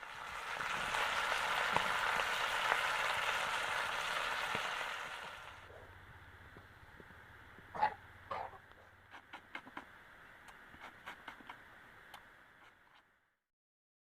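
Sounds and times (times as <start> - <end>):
food sizzling in oil: 0.0 - 5.7.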